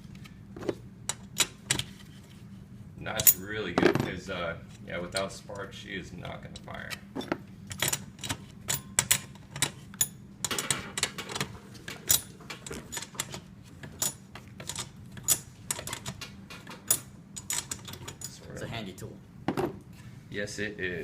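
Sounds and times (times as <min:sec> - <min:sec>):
low steady hum: 0:00.0 - 0:21.0
metal tools clinking: 0:16.8 - 0:18.5.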